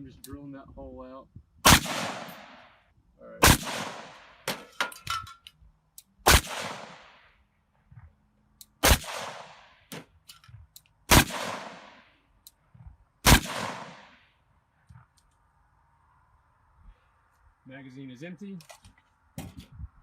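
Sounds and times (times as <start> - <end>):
gunshots with echo: 1.7 - 2.7, 3.4 - 4.6, 6.3 - 7.2, 8.8 - 9.8, 11.1 - 12.0, 13.2 - 14.2.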